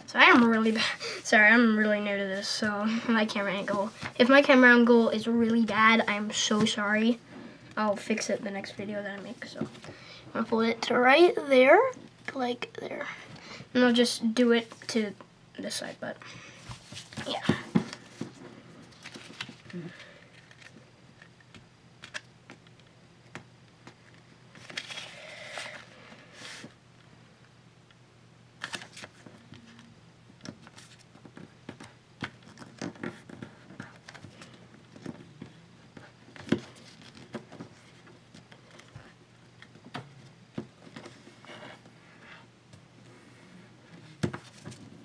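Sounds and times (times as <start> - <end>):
paper rustling and crinkling: 16.7 - 20.8, 23.9 - 26.7, 28.6 - 29.8, 30.4 - 39.9, 44.2 - 45.0.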